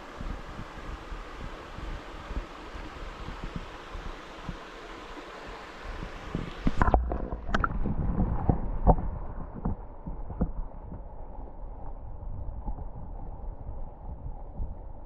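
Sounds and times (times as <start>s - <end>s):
mountain stream rushing: 0.0s - 7.7s
low thumps and knocks: 6.3s - 11.1s.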